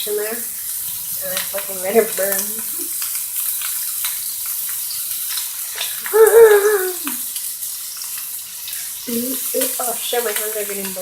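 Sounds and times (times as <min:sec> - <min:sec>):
sausage sizzling in a pan: 0:00.0 - 0:11.0
crackles and pops: 0:00.3 - 0:11.0
wavering voice-like sound: 0:06.1 - 0:07.2.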